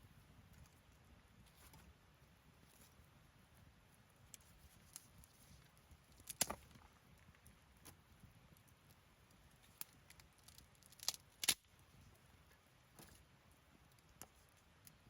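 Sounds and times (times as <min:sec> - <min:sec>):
campfire crackling and popping: 0:06.2 - 0:07.9, 0:08.6 - 0:11.7.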